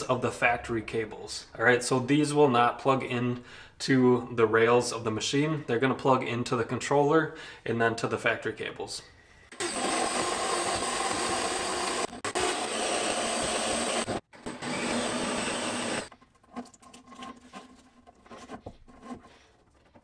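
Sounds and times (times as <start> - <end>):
small electric tool motor running: 9.5 - 16.1.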